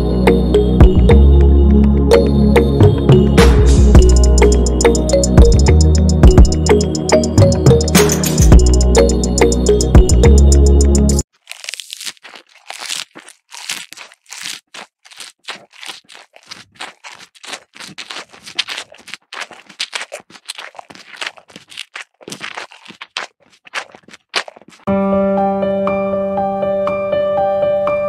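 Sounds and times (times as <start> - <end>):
crunchy munching of grass: 11.1 - 24.9.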